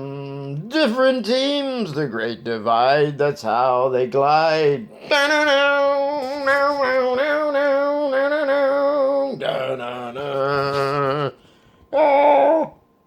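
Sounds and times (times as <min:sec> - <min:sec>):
man singing held note: 0:04.9 - 0:12.8.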